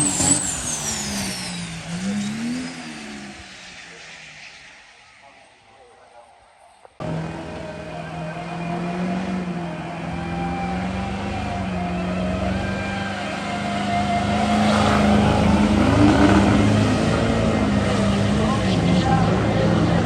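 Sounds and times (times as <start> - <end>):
truck engine under load: 7.0 - 20.0.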